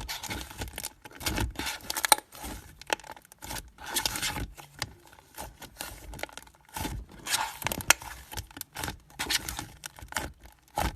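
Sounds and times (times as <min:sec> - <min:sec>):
slime squishing by hand: 0:00.0 - 0:10.9.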